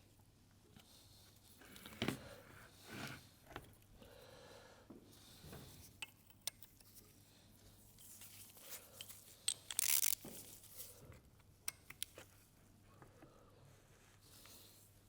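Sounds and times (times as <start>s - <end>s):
metal parts clicking and tapping: 9.0s - 10.2s.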